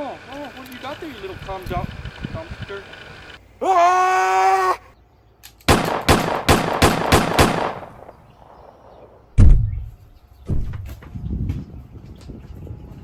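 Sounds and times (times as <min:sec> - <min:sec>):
heavy thud: 0:09.4 - 0:10.9.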